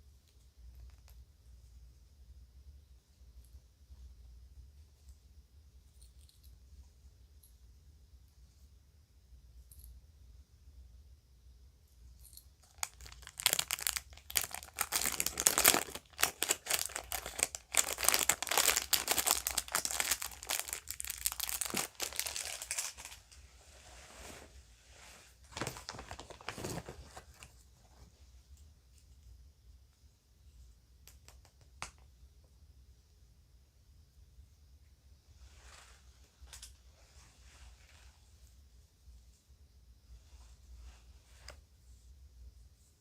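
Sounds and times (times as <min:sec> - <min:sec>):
bag crinkling and rustling: 0:12.6 - 0:23.4, 0:25.4 - 0:27.5.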